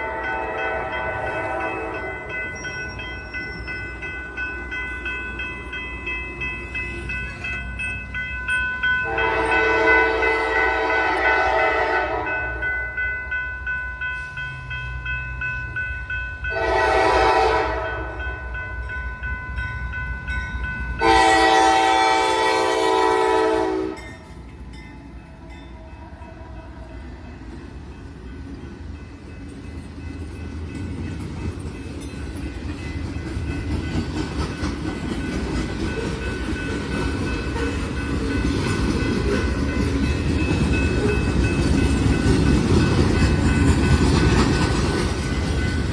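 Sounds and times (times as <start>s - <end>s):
locomotive horn blasts: 0.0s - 2.2s, 9.0s - 12.6s, 16.5s - 18.2s, 21.0s - 24.1s
train rumble and wheel noise: 0.0s - 45.9s.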